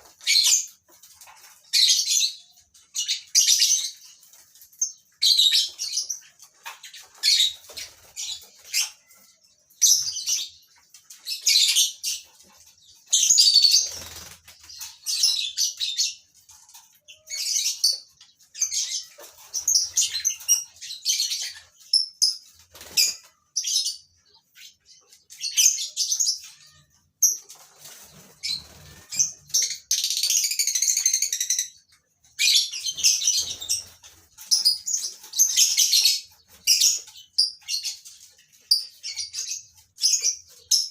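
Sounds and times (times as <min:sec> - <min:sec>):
wings fluttering: 0:00.0 - 0:01.8, 0:13.6 - 0:15.1, 0:22.5 - 0:23.4, 0:27.4 - 0:29.9.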